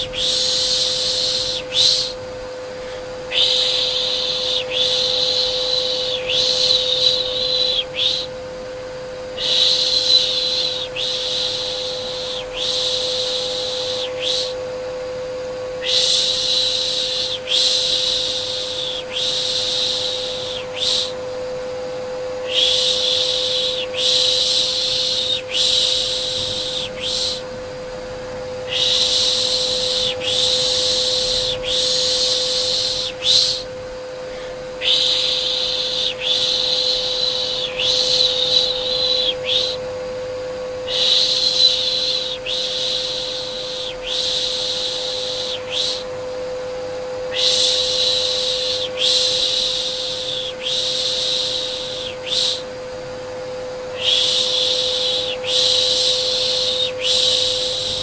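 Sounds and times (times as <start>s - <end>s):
vacuum cleaner humming: 0.0s - 58.0s
person shushing: 2.8s - 8.3s, 22.4s - 27.6s, 34.3s - 39.8s.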